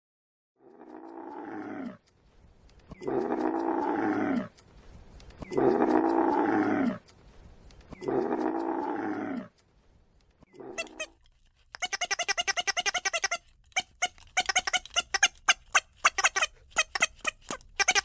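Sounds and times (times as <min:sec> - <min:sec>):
animal calling: 0:02.9 - 0:04.6, 0:05.4 - 0:07.0, 0:10.5 - 0:18.0.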